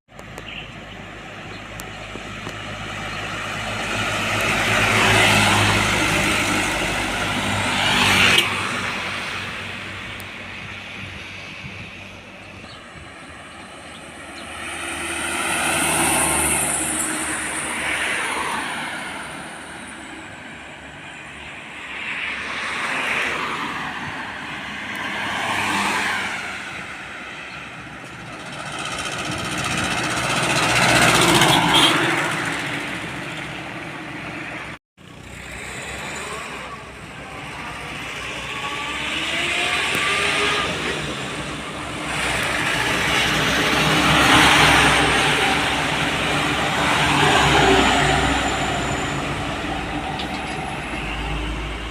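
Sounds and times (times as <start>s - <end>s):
vehicles passing: 0.1s - 51.9s
engine accelerating: 28.0s - 33.9s, 35.0s - 51.9s.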